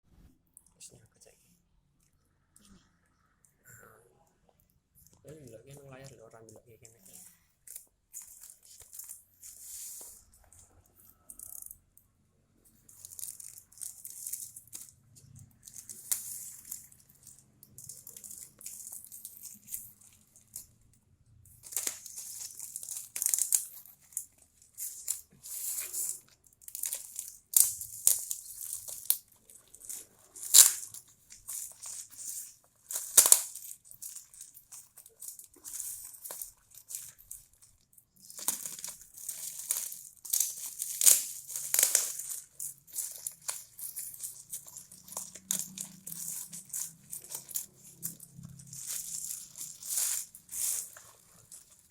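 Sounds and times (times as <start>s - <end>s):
packaging crinkling and ripping: 12.7s - 20.7s, 21.5s - 51.9s.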